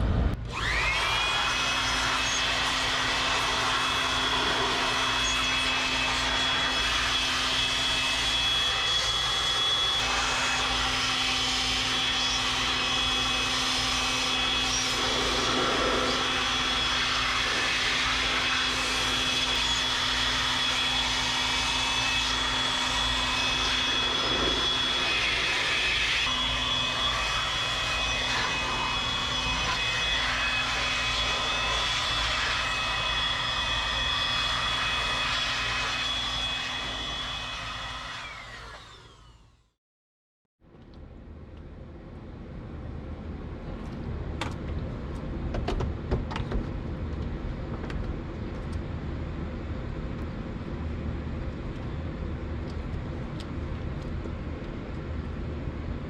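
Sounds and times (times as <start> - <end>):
high whine: 0.0 - 39.2
machine hum and whir: 0.0 - 39.7, 40.7 - 56.0.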